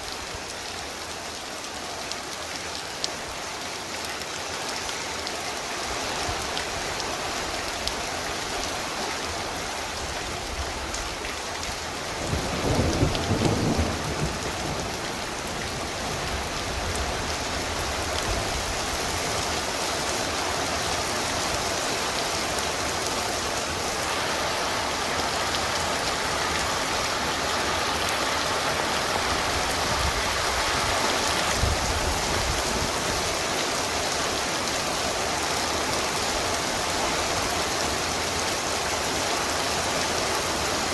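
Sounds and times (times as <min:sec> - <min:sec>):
heavy rain pouring: 0:00.0 - 0:40.9
low thunder rumble: 0:12.2 - 0:16.3.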